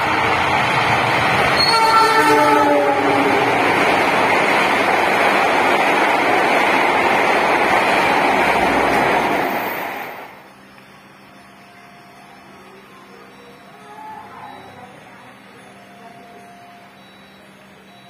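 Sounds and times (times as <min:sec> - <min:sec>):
train passing at speed: 0:00.0 - 0:18.0.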